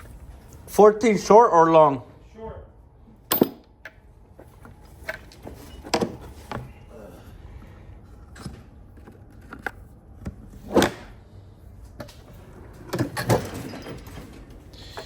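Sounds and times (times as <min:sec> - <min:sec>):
hand tools and metal clanking: 0:03.3 - 0:06.6, 0:12.0 - 0:15.0.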